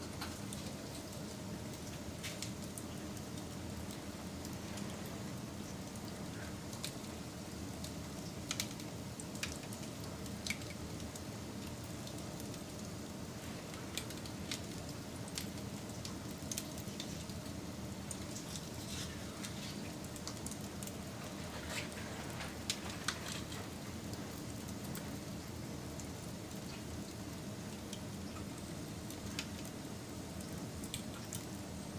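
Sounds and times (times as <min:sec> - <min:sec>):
wood fire crackling and popping: 0:00.0 - 0:31.9
low rush of flames: 0:12.6 - 0:26.6.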